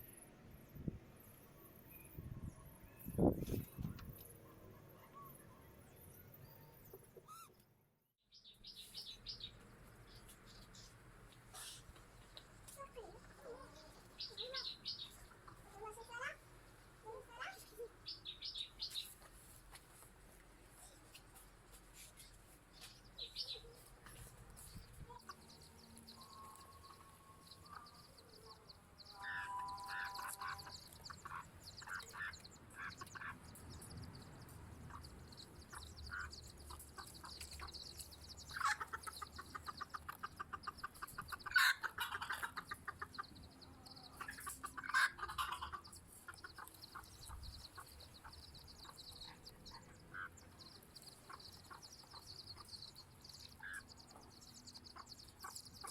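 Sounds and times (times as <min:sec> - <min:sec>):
chickens clucking: 0:11.5 - 0:16.4, 0:20.8 - 0:55.9.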